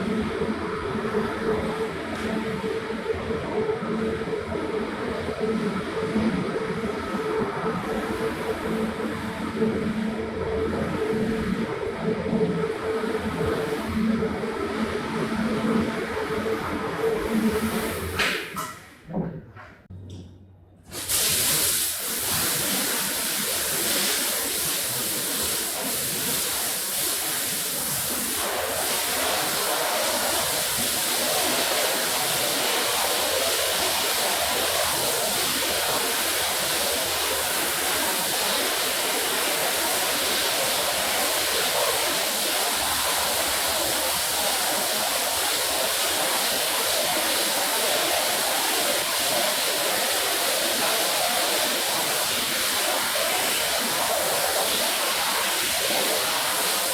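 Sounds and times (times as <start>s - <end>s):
water jet spraying onto rug: 20.9s - 56.9s.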